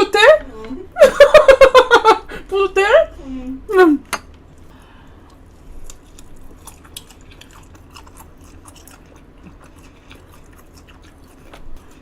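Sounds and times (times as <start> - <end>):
person chewing food: 4.6 - 12.0.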